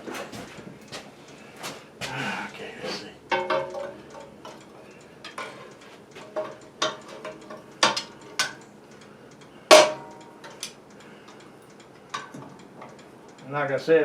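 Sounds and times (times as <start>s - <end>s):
metal parts and tools clicking: 3.3s - 8.7s.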